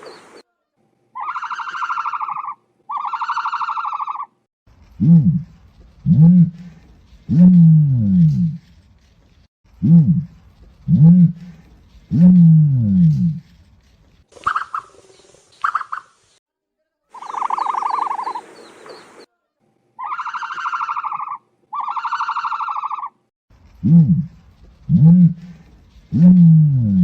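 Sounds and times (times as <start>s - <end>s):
ostrich calling: 1.2s - 4.3s, 17.1s - 19.3s, 20.0s - 23.2s.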